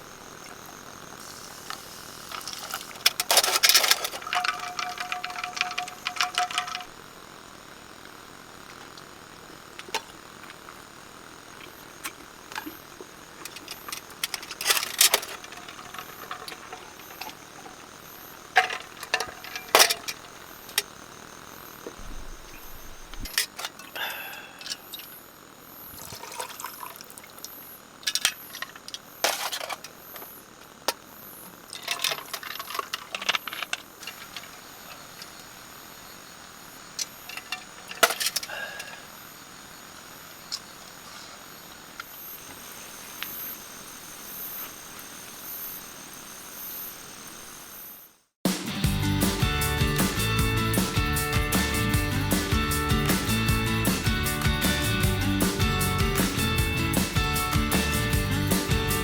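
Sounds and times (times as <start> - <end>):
high-pitched insect chirring: 0.0 - 48.2
small objects clinking and knocking: 1.2 - 7.0, 11.6 - 21.0, 31.7 - 35.3.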